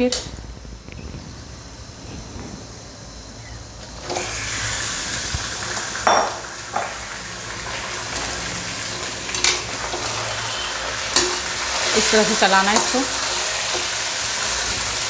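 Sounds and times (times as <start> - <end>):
chicken sizzling in oil: 4.0 - 15.0.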